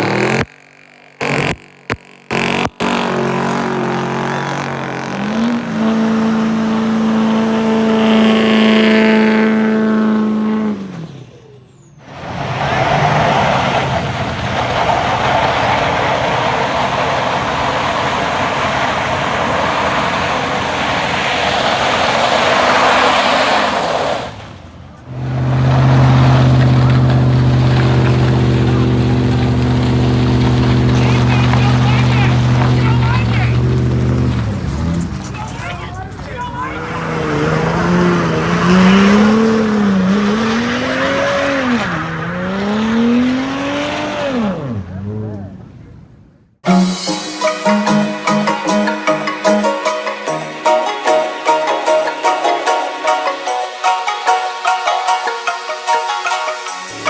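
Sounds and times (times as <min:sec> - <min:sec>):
truck engine revving: 0:00.0 - 0:46.9, 0:55.8 - 0:57.0
rushing noise: 0:12.1 - 0:44.2
engine running at low pitch: 0:24.5 - 0:46.6.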